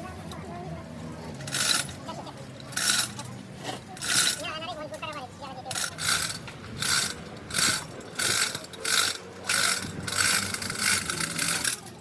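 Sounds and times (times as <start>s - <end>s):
tool rasping on metal: 5.7s - 11.8s.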